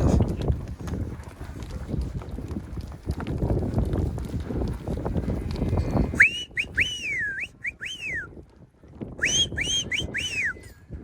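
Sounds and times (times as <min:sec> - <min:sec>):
low rumbling movement noise: 0:00.0 - 0:11.0
person whistling sharp notes: 0:06.2 - 0:08.3, 0:09.2 - 0:10.7.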